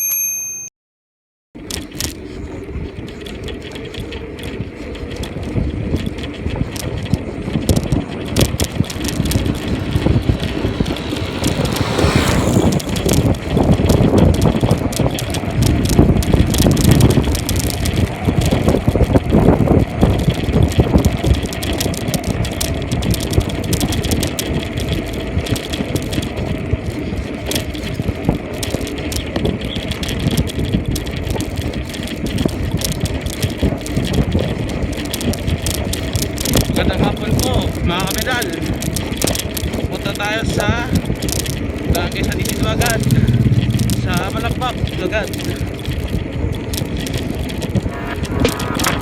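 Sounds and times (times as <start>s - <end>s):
bicycle tyre and wind noise: 1.6s - 49.0s
bike rattles and knocks: 1.6s - 49.0s
falling whoosh: 8.3s - 13.9s, 42.0s - 44.6s, 47.2s - 49.0s.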